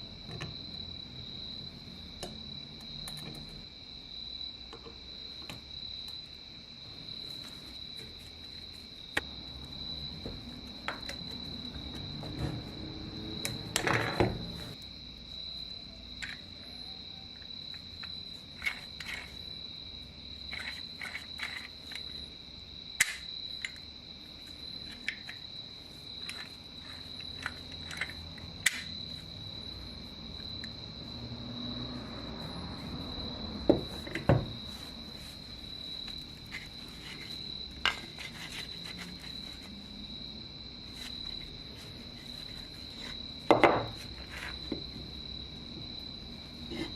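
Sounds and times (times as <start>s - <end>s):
insect trill: 0.0s - 46.9s
metal parts and tools clicking: 20.5s - 22.2s, 26.2s - 28.9s.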